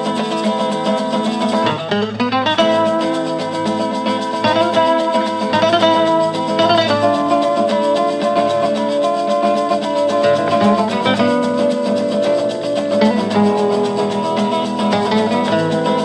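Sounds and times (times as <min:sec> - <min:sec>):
maraca shaking: 0:00.0 - 0:16.0
plucked acoustic guitars: 0:00.0 - 0:16.0.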